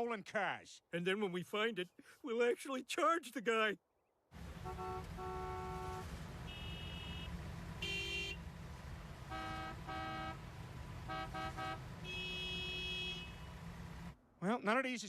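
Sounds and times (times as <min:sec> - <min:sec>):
car horns honking: 0:04.4 - 0:08.5, 0:09.1 - 0:13.7
car engines rumbling: 0:04.4 - 0:14.2.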